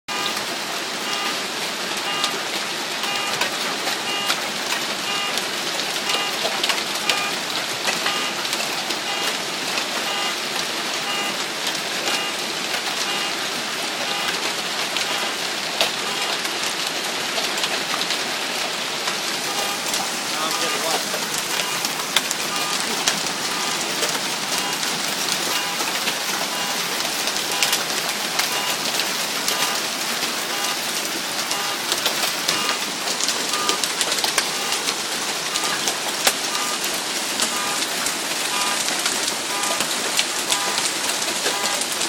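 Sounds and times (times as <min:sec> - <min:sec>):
short electronic beeps: 0:00.1 - 0:00.4, 0:01.0 - 0:01.4, 0:02.0 - 0:02.4, 0:03.0 - 0:04.4, 0:05.0 - 0:05.4, 0:06.0 - 0:07.4, 0:08.0 - 0:08.4, 0:09.1 - 0:09.4, 0:10.0 - 0:10.4, 0:11.0 - 0:11.4, 0:12.1 - 0:12.4, 0:13.0 - 0:13.4, 0:14.1 - 0:14.4, 0:15.1 - 0:15.4, 0:16.0 - 0:16.4, 0:19.5 - 0:23.9, 0:24.5 - 0:24.9, 0:25.5 - 0:25.8, 0:26.5 - 0:26.8, 0:27.5 - 0:27.8, 0:28.5 - 0:28.9, 0:29.5 - 0:29.9, 0:30.5 - 0:30.9, 0:31.5 - 0:31.9, 0:32.5 - 0:32.8, 0:33.5 - 0:33.8, 0:34.4 - 0:34.9, 0:35.5 - 0:35.9, 0:36.5 - 0:37.9, 0:38.5 - 0:38.9, 0:39.5 - 0:39.8, 0:40.5 - 0:40.9, 0:41.5 - 0:41.9
hail and heavy rain: 0:00.1 - 0:42.0.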